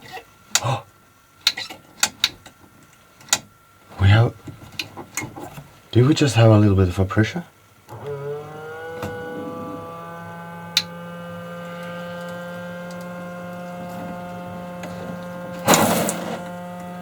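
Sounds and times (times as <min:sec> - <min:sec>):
water pump motor whine: 0:07.8 - 0:17.0
hissing burst: 0:13.4 - 0:17.0.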